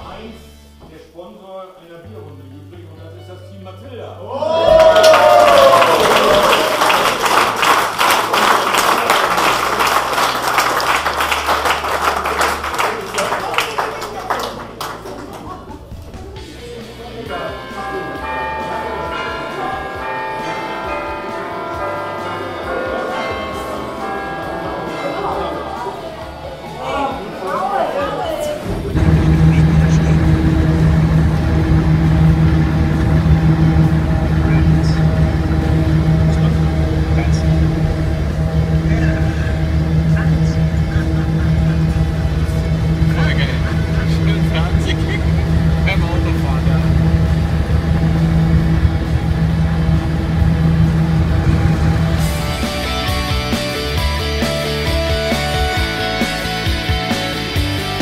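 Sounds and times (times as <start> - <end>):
audience applauding: 4.4 - 16.5, 17.8 - 47.4
car engine droning: 28.6 - 58.0.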